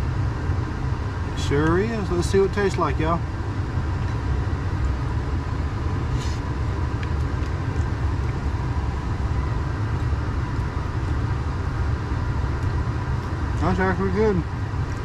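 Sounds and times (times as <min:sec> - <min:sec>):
faint steady hum: 0:00.0 - 0:15.0
truck engine idling: 0:00.0 - 0:15.0.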